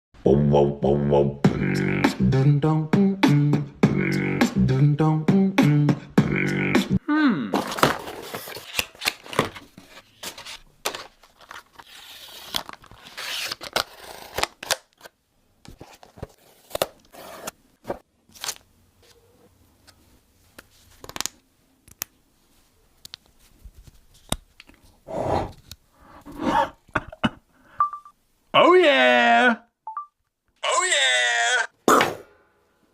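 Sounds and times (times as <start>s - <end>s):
packaging tearing and scraping: 7.6s - 15.1s.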